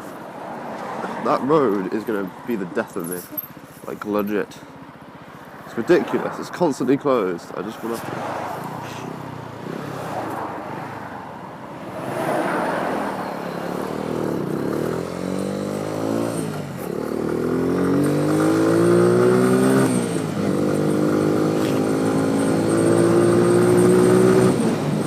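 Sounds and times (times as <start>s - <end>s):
motorcycle engine accelerating: 12.8s - 25.0s.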